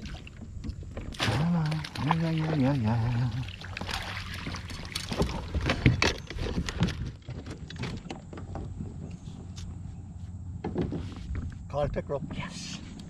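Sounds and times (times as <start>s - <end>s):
knocks and clicks in kayak: 0.0s - 2.7s, 3.6s - 9.8s, 10.6s - 11.6s.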